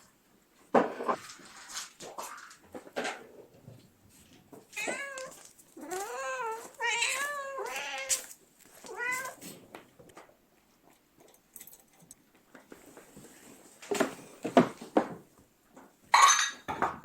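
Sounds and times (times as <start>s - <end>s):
cat meowing: 4.7s - 8.2s, 8.8s - 9.4s.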